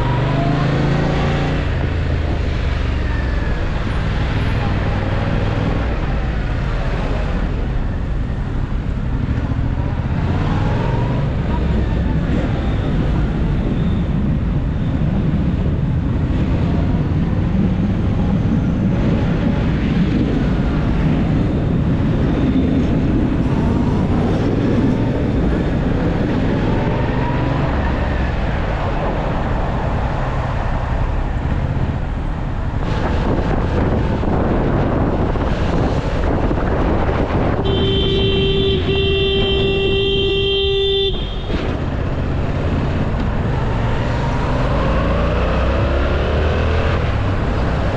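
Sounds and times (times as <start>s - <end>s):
wind and road noise: 0.0s - 47.9s
vehicle horn honking: 37.6s - 41.6s.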